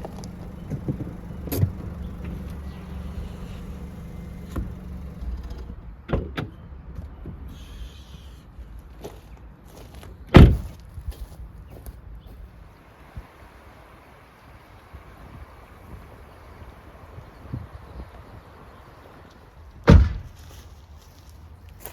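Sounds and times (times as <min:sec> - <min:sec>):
car engine idling: 0:00.0 - 0:05.9, 0:12.6 - 0:19.2.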